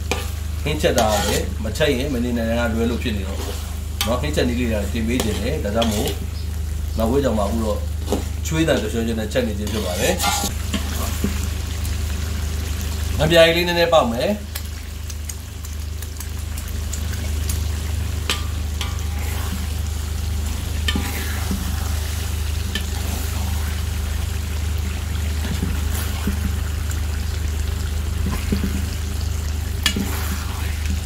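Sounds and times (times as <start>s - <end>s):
spatula scraping a wok: 0.0s - 1.7s, 2.7s - 6.3s, 9.6s - 11.4s, 18.3s - 19.8s, 20.4s - 23.8s, 25.4s - 26.6s, 29.8s - 31.0s
curry sizzling in hot oil: 0.0s - 31.0s.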